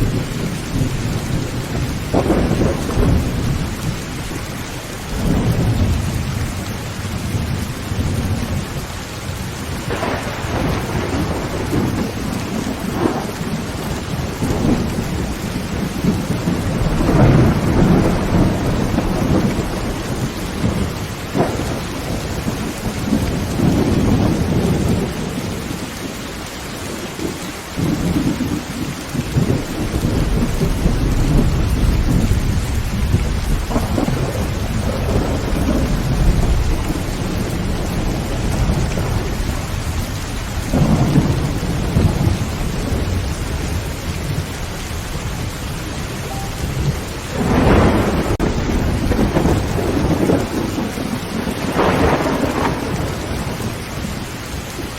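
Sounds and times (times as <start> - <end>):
sharp thunder cracks: 0.0 - 4.3, 9.8 - 25.3, 29.3 - 43.8, 46.4 - 53.7
thunder rumbling: 0.0 - 26.2, 26.9 - 54.9
heavy rain on a tin roof: 0.0 - 54.9.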